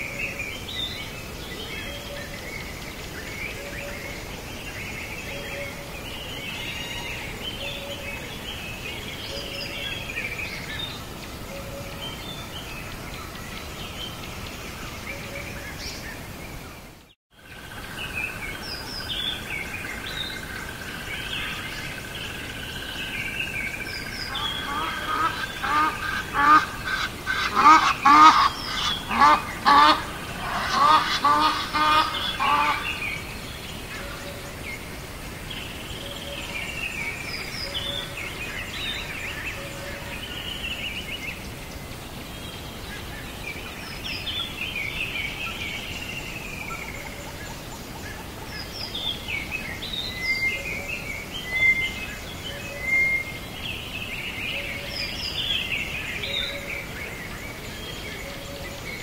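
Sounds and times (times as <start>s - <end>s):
bird repeated calls: 22.8s - 33.3s.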